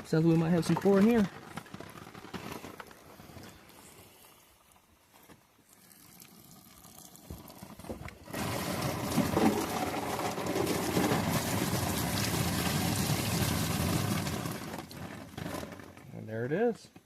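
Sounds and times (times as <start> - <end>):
water pouring from jug: 5.9 - 15.0.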